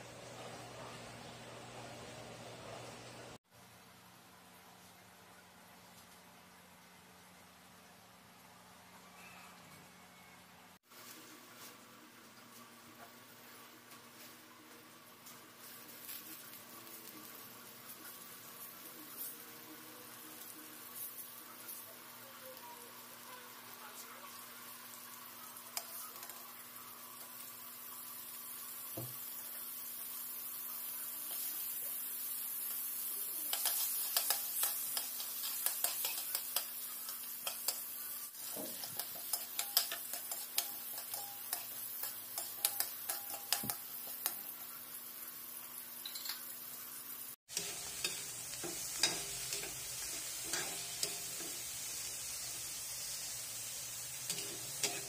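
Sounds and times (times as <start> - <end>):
food sizzling in oil: 13.4 - 55.0
metal spatula scraping a wok: 47.5 - 52.5, 54.1 - 55.0.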